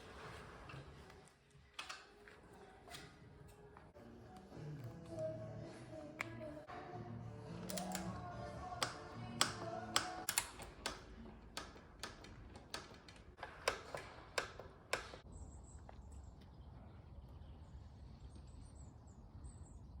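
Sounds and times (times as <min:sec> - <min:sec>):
sharp irregular clicks: 0:07.7 - 0:08.1, 0:08.8 - 0:15.2.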